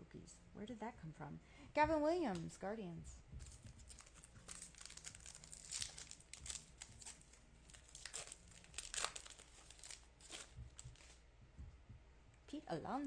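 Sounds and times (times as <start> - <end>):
trading cards rustling: 3.4 - 11.2.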